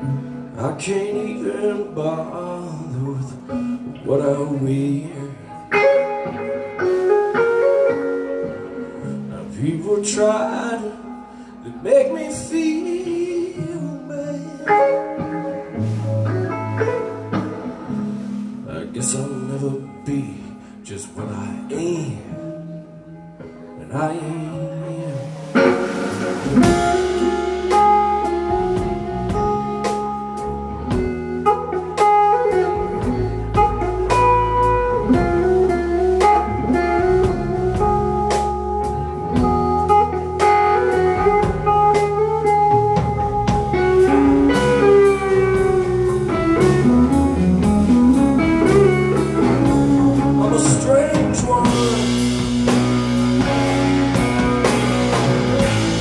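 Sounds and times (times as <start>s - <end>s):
electric guitar sliding notes: 0.0s - 20.8s, 22.1s - 56.0s
live rock band playing: 0.0s - 56.0s.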